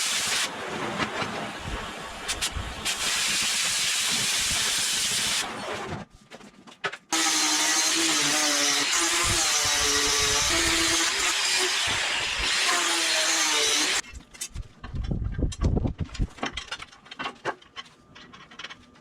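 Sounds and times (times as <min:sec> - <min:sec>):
power drill boring through steel: 0:07.2 - 0:14.0.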